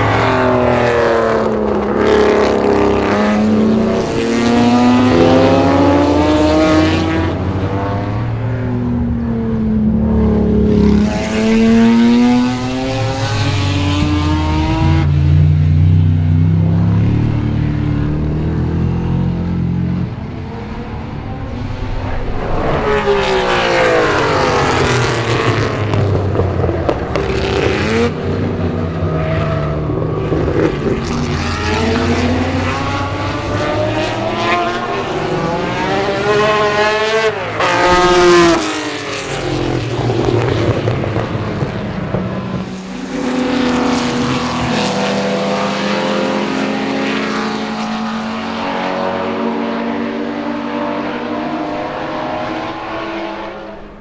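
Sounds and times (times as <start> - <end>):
race cars passing: 0.0 - 54.0.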